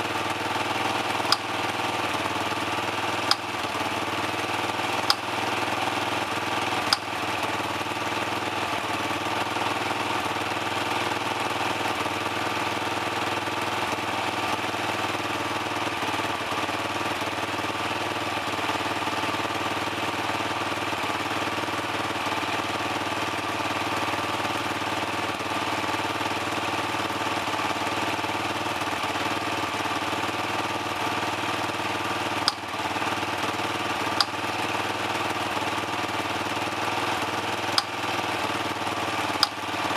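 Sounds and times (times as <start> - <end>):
dirt bike engine idling: 0.0 - 39.9
sharp clicks: 1.2 - 1.6, 3.3 - 3.7, 5.0 - 5.3, 32.5 - 32.7, 39.4 - 39.6.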